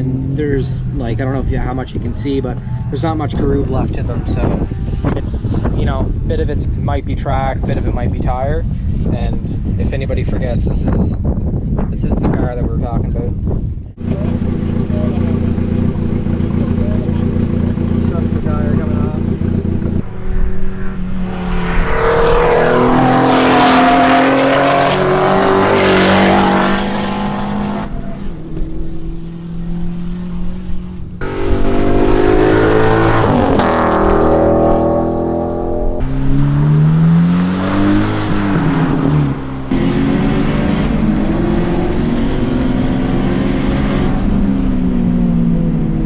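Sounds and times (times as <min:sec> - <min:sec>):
race car engine accelerating: 0:14.0 - 0:46.0.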